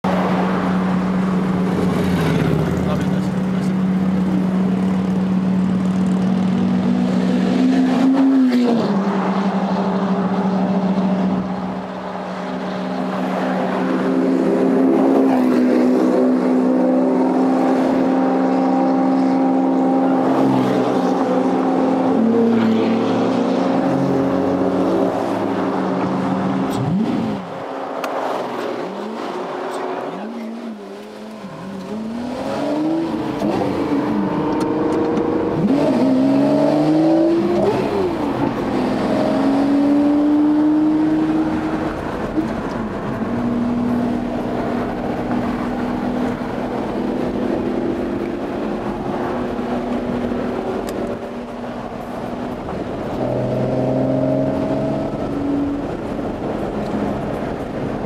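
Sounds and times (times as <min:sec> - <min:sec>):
sports car accelerating: 0:00.1 - 0:58.0.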